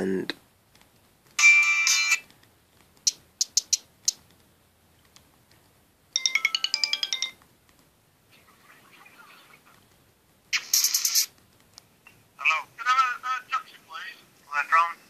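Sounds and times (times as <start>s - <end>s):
faint ringtone melody: 1.4s - 2.2s, 6.1s - 7.4s.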